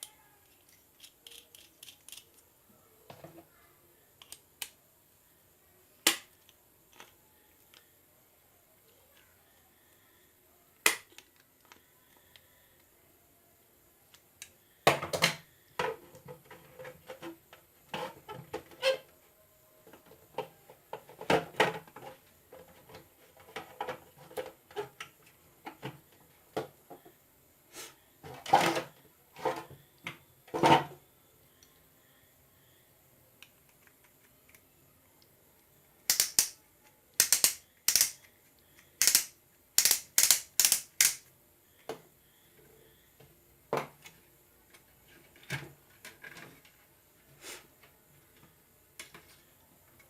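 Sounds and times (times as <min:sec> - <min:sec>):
small parts clicking and clattering: 0:00.0 - 0:02.5, 0:36.1 - 0:36.6, 0:37.2 - 0:41.3.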